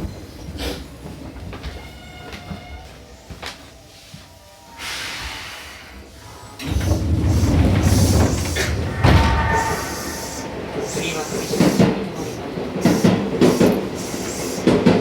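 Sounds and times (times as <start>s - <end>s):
air hiss: 4.8s - 15.0s
loud low train rumble: 5.2s - 15.0s
thump: 6.7s - 10.5s.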